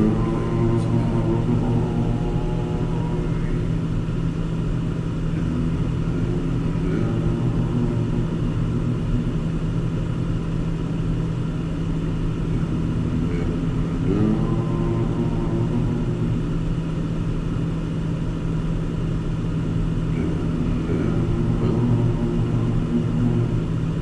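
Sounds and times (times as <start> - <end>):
car engine and road drone: 0.0 - 24.0.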